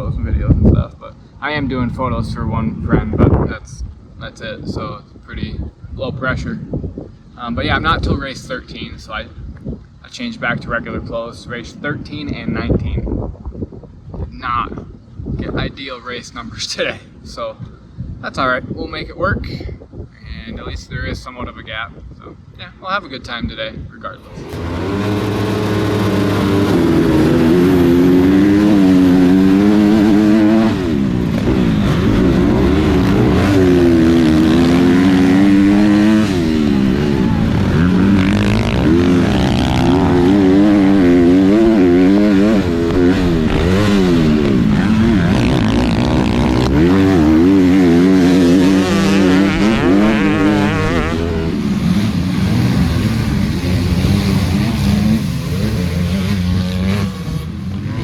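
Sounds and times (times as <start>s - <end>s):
dirt bike engine revving: 24.2s - 58.0s.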